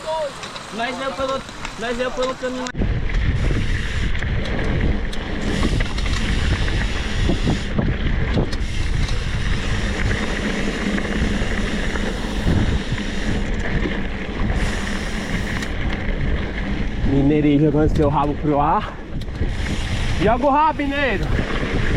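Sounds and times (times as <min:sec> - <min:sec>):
wind buffeting microphone: 0:02.7 - 0:21.9
small motorcycle engine running: 0:03.4 - 0:17.9.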